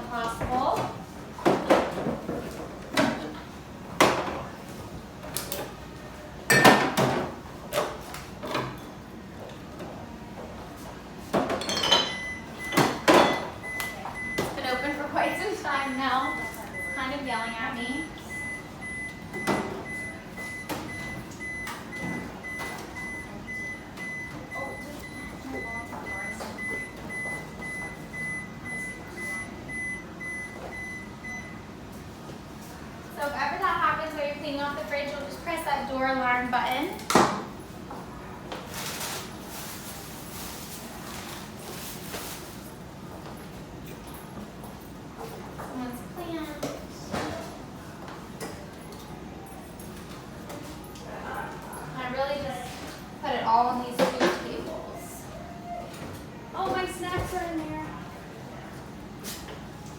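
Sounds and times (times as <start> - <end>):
refrigerator alarm beeping: 12.0 - 31.8.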